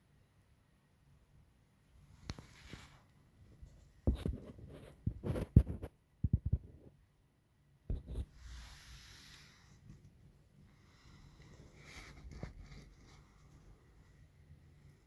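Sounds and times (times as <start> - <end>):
faint rubbing or scraping: 8.0 - 14.4.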